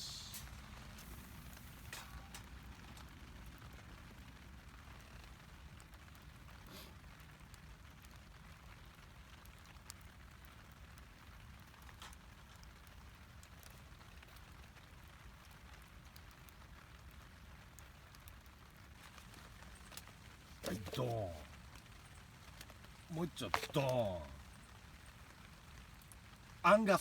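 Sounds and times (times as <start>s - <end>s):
faint steady rain: 0.0s - 27.0s.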